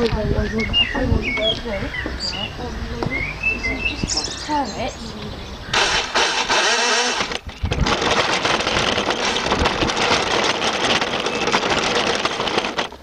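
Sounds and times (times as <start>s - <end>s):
toy car wheels rattling: 5.7s - 13.0s.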